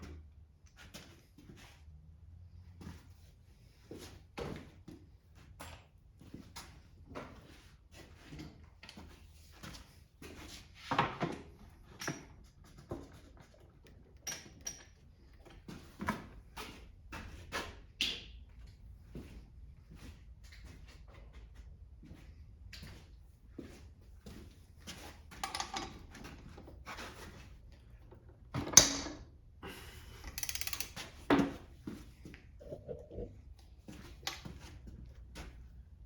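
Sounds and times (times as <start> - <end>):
tools and metal parts clinking: 13.8 - 15.6, 25.3 - 26.5, 30.2 - 31.2
low steady hum: 32.6 - 33.7.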